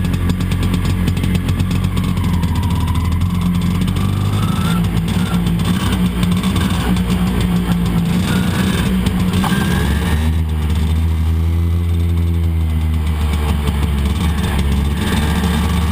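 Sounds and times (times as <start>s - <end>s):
scooter two-stroke engine running: 0.0s - 15.9s.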